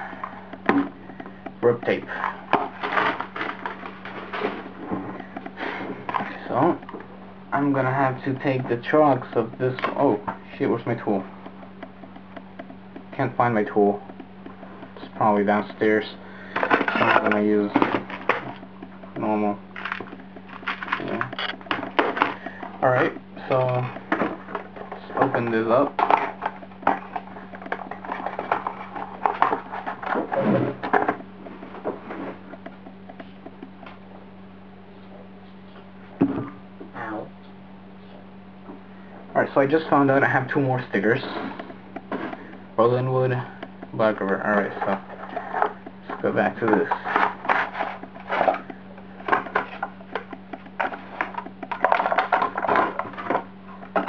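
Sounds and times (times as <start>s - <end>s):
small clicks and knocks: 0.0s - 34.0s, 39.4s - 54.0s
steady low hum: 0.0s - 54.0s
faint taps: 8.3s - 34.0s.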